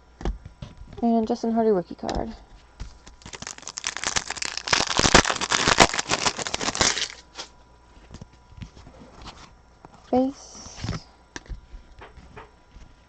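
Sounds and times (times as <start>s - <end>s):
foil wrapper crinkling: 3.0s - 7.5s.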